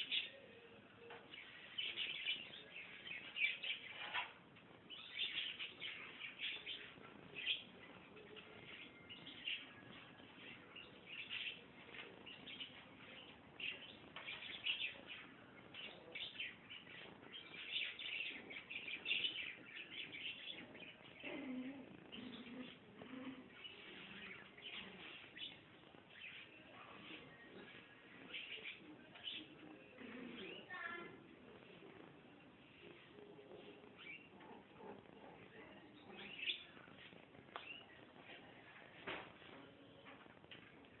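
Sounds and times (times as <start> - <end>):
puppies squeaking and whimpering: 18.4 - 24.2.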